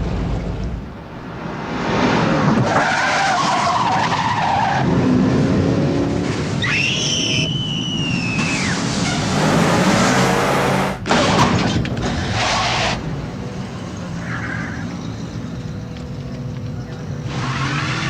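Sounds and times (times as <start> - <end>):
tyres squealing: 6.6 - 11.4
car engine running hard: 8.6 - 18.0.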